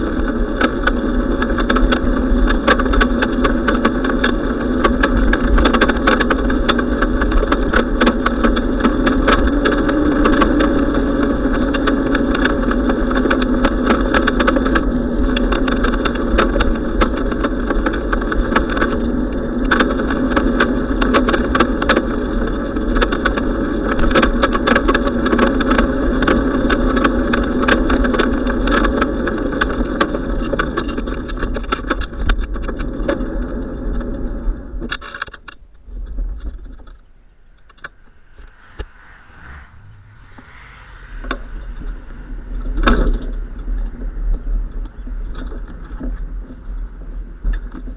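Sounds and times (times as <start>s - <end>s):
road noise: 36.4s - 46.6s
wind rumble: 36.4s - 46.8s.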